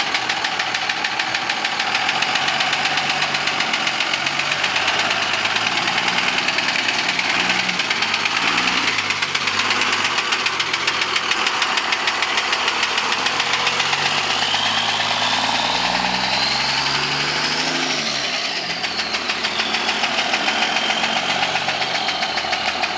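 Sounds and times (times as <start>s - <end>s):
diesel engine knocking: 0.0s - 22.9s
high engine whistle: 11.4s - 22.9s.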